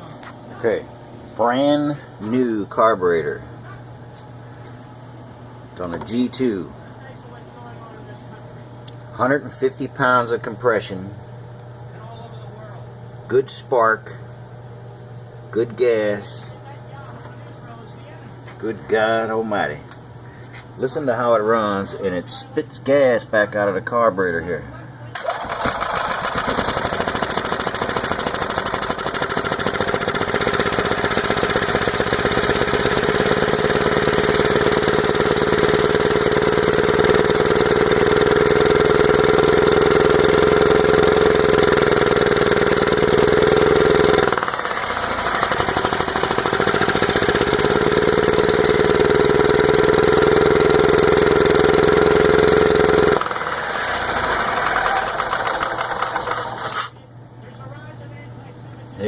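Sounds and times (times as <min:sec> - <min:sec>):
golf cart engine running rough: 0:25.2 - 0:56.9.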